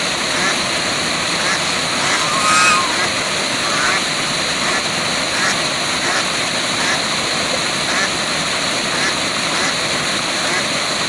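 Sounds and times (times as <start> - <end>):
short animal calls: 1.4 - 4.2.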